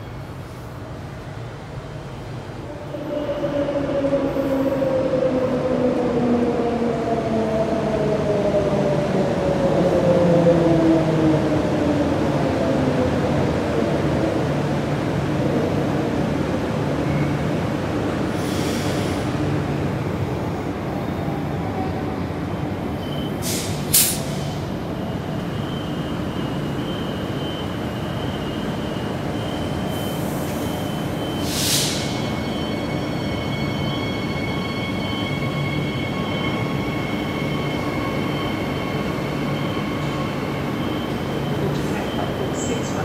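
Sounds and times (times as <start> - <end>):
sharp air hisses: 18.3 - 19.3, 23.4 - 24.6, 31.4 - 32.2.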